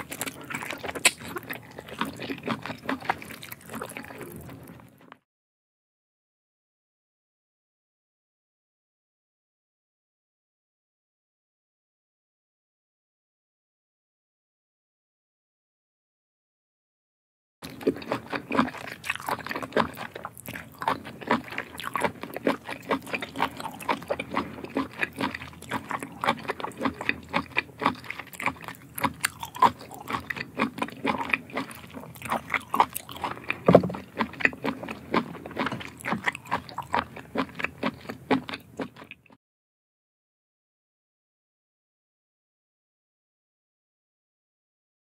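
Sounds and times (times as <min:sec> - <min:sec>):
wet chewing and lip-smacking: 0:00.0 - 0:04.9, 0:17.6 - 0:39.4.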